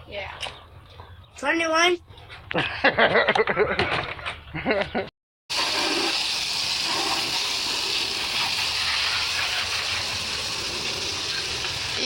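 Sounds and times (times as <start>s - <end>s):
water spraying: 5.5s - 12.0s.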